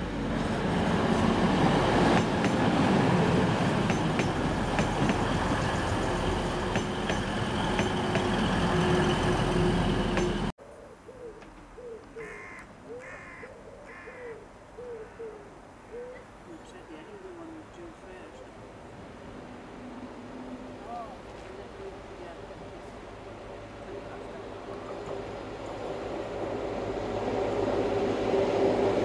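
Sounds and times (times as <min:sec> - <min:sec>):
diesel train passing: 0:00.0 - 0:10.5, 0:18.6 - 0:29.0
wheels clicking over rail joints: 0:02.0 - 0:02.8, 0:03.5 - 0:05.8, 0:06.6 - 0:09.2
low bird calls: 0:10.6 - 0:16.3.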